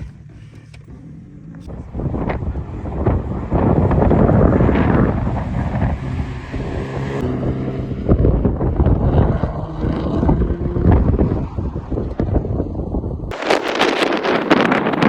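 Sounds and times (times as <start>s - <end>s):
sports car engine running: 0.0s - 15.0s
wind buffeting microphone: 0.0s - 15.0s.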